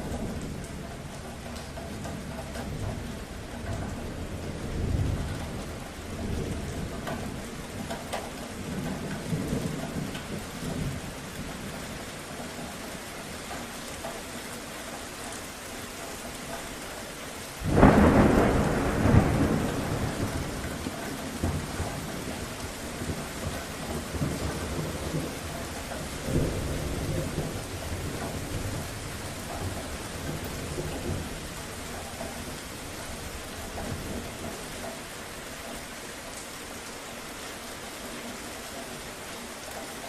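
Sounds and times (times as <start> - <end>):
thunder rumbling: 0.0 - 11.9, 17.6 - 34.9
steady rain: 0.0 - 40.0
loud thunderclap: 17.6 - 31.5.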